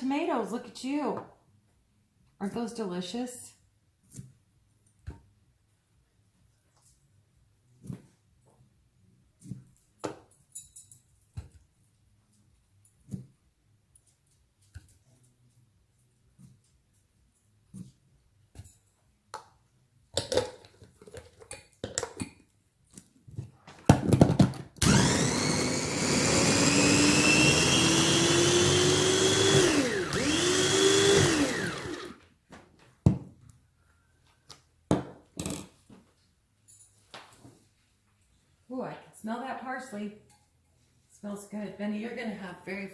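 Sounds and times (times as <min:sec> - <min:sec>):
food processor motor whining: 0:24.8 - 0:32.2.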